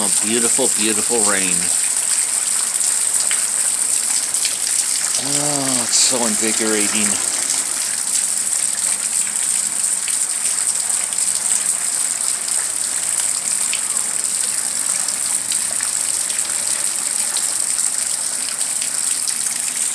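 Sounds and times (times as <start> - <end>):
rain falling: 0.0 - 19.9.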